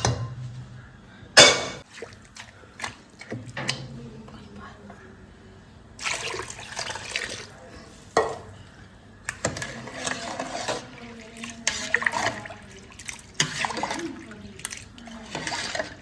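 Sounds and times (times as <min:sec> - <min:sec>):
pot and utensils clinking: 0:01.4 - 0:01.8
water splashing and pouring: 0:06.0 - 0:07.6, 0:09.4 - 0:16.0.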